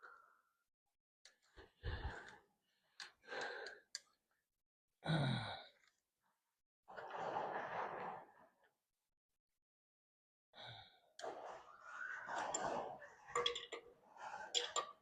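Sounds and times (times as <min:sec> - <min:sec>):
man breathing heavily and sighing: 0:05.0 - 0:05.8.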